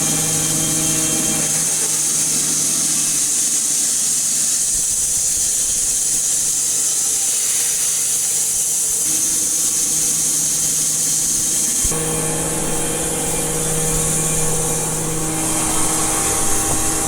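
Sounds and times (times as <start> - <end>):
band sawmill running: 0.0 - 4.0, 11.6 - 17.0.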